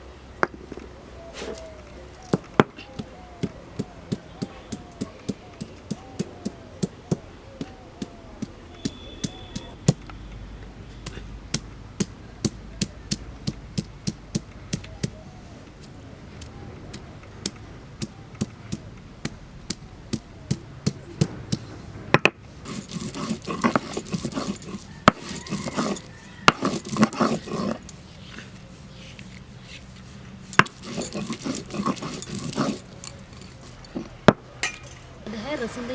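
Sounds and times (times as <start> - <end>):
irregular scraping and rattling: 20.1 - 35.3
food being chopped by hand: 22.2 - 27.9.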